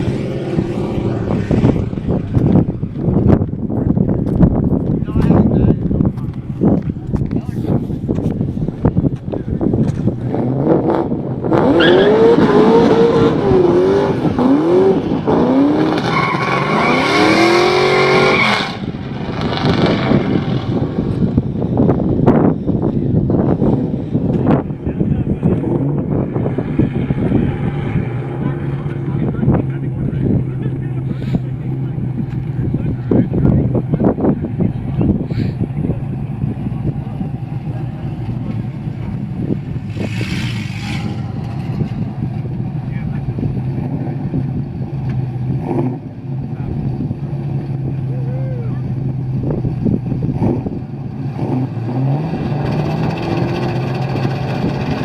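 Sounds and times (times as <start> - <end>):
car engine at full throttle: 0.0 - 55.0
road noise: 0.0 - 55.0
wind noise: 0.0 - 55.0.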